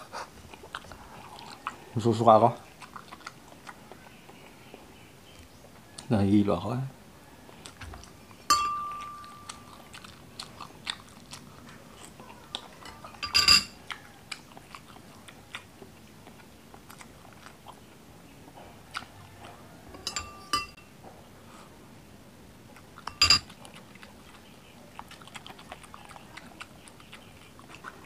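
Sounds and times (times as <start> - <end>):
close-up wet chewing: 0.0 - 6.2, 7.0 - 20.5, 21.5 - 28.0
metal spoon clinking: 8.5 - 9.5, 12.8 - 13.8, 19.9 - 20.8, 23.1 - 23.5.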